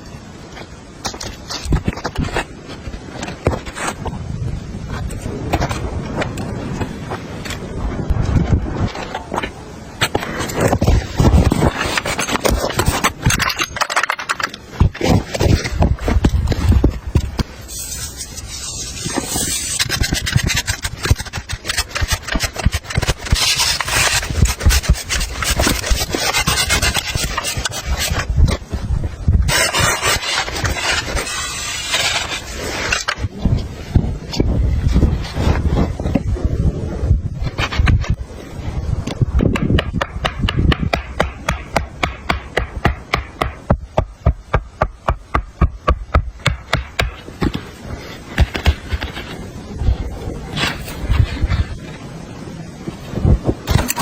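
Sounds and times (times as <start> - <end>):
rough crunching scraping: 0.4 - 36.3, 46.4 - 54.0.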